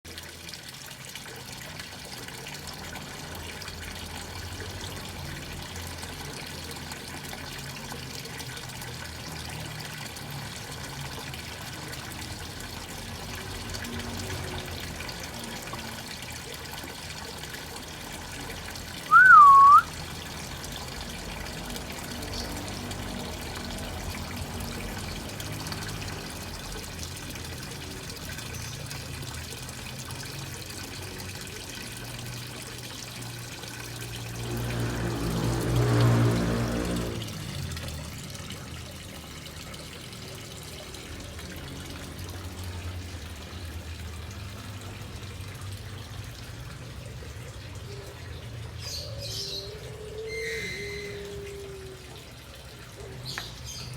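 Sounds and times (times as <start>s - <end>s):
whistled note dipping and rising: 19.1s - 19.9s, 50.0s - 52.0s.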